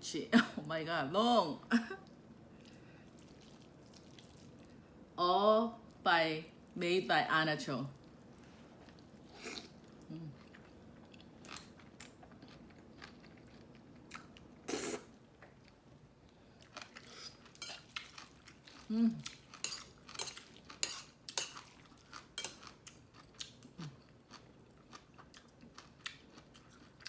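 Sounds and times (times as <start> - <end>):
chewing: 2.6 - 4.8, 8.0 - 14.5, 16.5 - 27.0.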